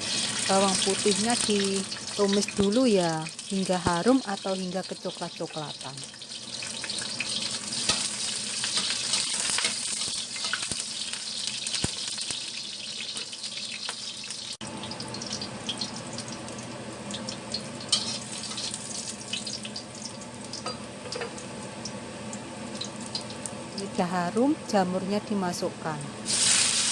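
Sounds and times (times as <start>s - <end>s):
garlic sizzling in hot oil: 0.0s - 26.9s.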